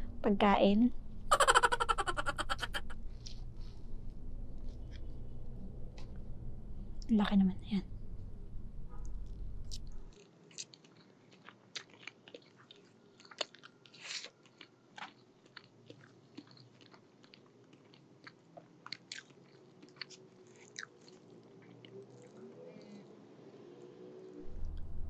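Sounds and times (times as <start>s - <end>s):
close chewing with wet mouth clicks: 9.7s - 23.0s.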